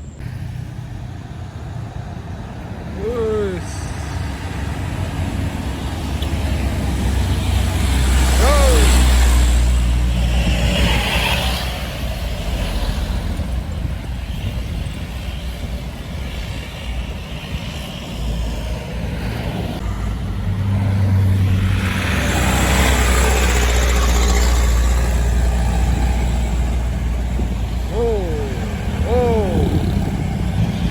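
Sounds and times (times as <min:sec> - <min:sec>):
road and traffic noise: 0:00.0 - 0:30.9
truck diesel engine labouring: 0:00.7 - 0:14.2, 0:19.7 - 0:30.9.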